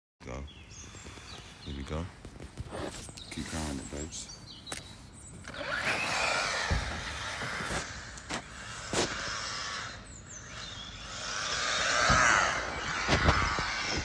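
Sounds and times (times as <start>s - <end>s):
rc car motors whining: 5.3s - 14.0s
rc cars knocking on bumps: 5.4s - 14.0s.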